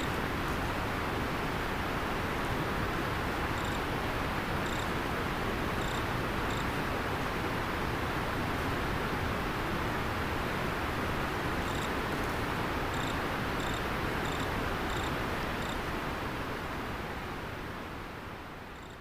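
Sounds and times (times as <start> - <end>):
river water flowing: 0.0 - 18.7
insect chirping: 3.6 - 3.8, 4.6 - 4.8, 5.8 - 6.6, 11.7 - 11.9, 12.9 - 15.8, 18.8 - 19.0.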